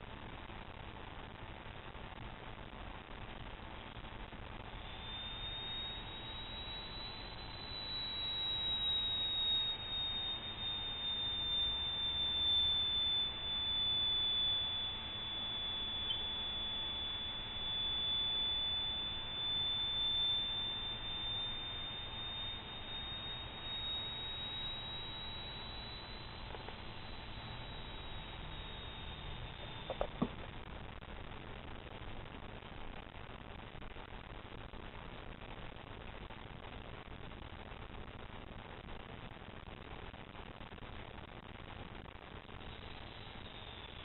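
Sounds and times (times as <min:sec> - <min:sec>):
high-pitched electronic tone: 0:04.8 - 0:30.6, 0:42.6 - 0:44.0.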